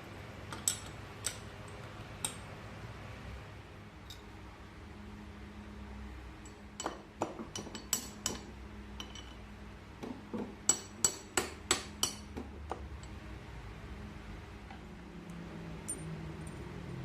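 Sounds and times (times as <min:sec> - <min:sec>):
metal tool clinking on metal: 0:09.0 - 0:09.4, 0:15.9 - 0:16.6.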